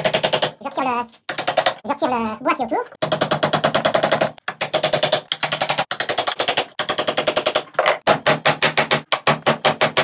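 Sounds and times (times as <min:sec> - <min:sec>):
hammer striking chisel into wood: 0:03.0 - 0:10.0.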